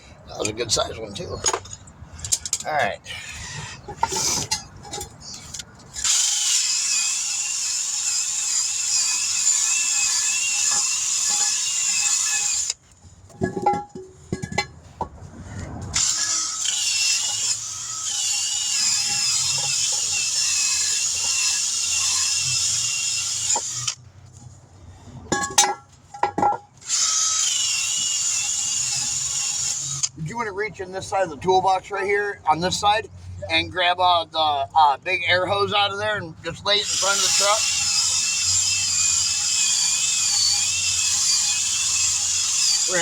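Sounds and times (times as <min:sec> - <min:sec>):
power drill running: 0:06.0 - 0:12.8, 0:16.0 - 0:24.0, 0:26.8 - 0:30.1, 0:36.8 - 0:43.0.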